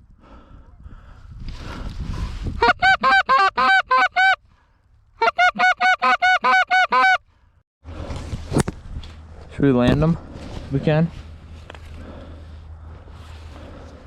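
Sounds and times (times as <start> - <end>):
goose call honking clucks: 2.6 - 4.4, 5.2 - 7.2
rustle: 7.9 - 14.0.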